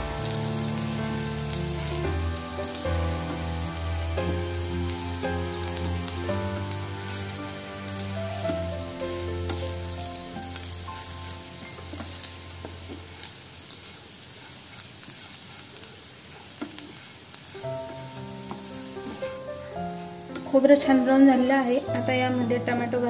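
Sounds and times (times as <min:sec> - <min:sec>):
soft background music: 0:00.0 - 0:13.7, 0:17.6 - 0:23.0
wooden spatula scraping pan: 0:00.0 - 0:15.7
food sizzling in frying pan: 0:00.0 - 0:23.0.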